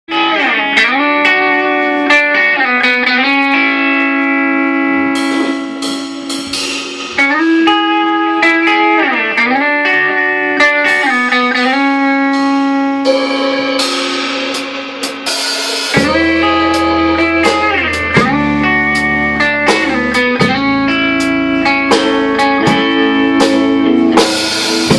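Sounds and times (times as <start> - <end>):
guitar sliding notes: 0.1 - 24.9
low bass: 11.7 - 24.9.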